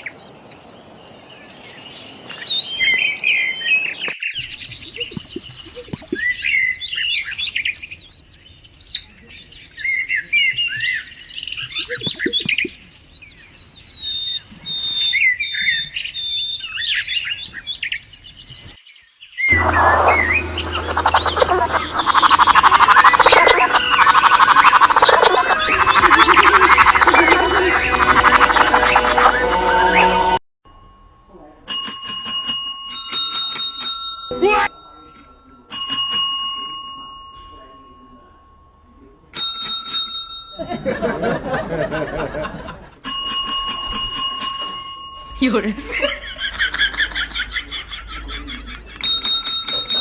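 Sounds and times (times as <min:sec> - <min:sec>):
birds chirping and whistling: 0:00.0 - 0:30.4
chorus of rapid pulsing calls: 0:19.5 - 0:30.4
low hum: 0:19.5 - 0:31.4.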